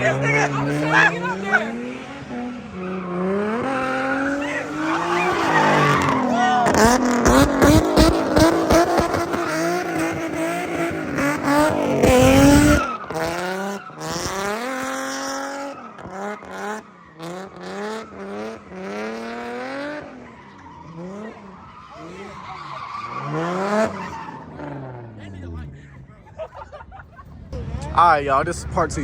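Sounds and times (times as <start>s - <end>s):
car engines revving high: 0.0s - 29.0s.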